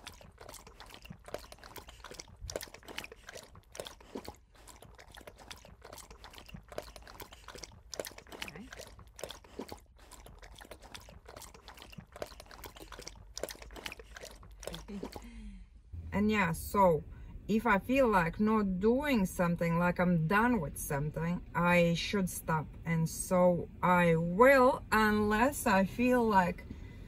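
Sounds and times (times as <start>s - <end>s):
dog licking plastic bottle: 0.0s - 15.2s.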